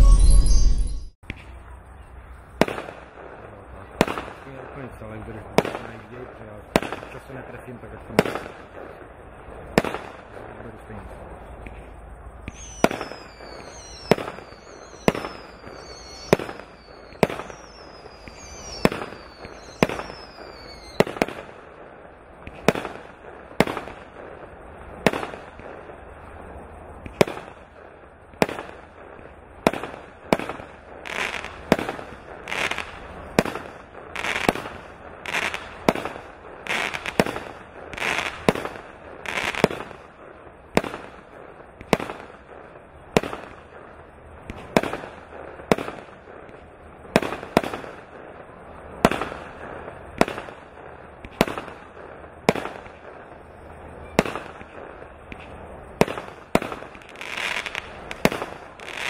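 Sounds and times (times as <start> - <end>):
falling whistle: 0.0 - 1.2, 12.5 - 21.0
fireworks shots: 0.0 - 59.0
loud hiss: 1.4 - 59.0.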